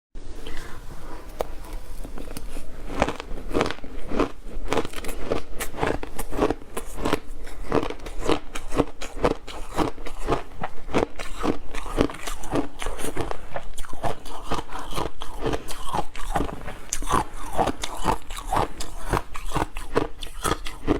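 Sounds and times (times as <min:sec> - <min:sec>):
person chewing ice: 0:00.4 - 0:20.9.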